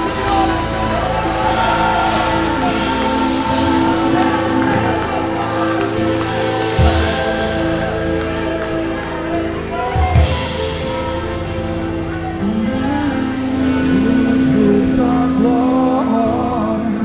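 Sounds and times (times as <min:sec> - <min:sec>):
heavy low drum hits: 0:00.0 - 0:15.6
worship band music: 0:00.0 - 0:17.0.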